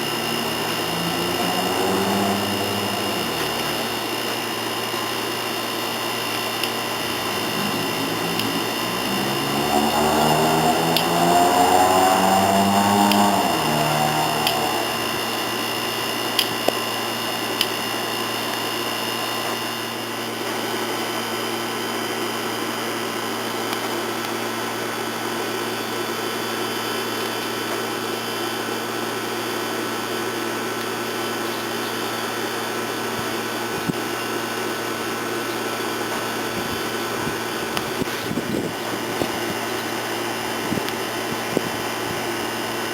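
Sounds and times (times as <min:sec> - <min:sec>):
machine hum: 0:00.0 - 0:16.7.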